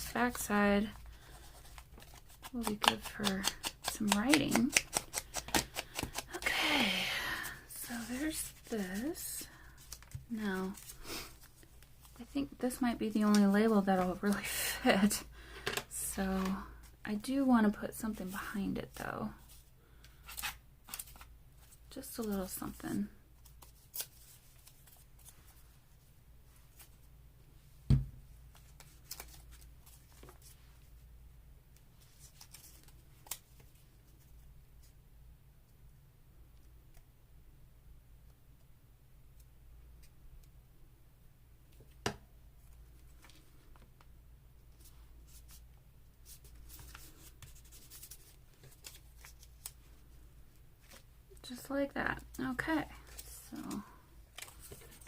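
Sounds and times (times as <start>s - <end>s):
paper rustling: 0.8s - 6.5s, 46.2s - 50.0s
solid thump on table: 27.9s - 28.2s.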